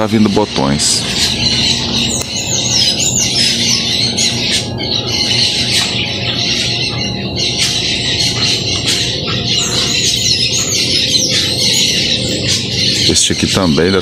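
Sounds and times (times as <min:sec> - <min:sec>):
background music: 0:00.0 - 0:14.0
birds chirping: 0:00.0 - 0:14.0.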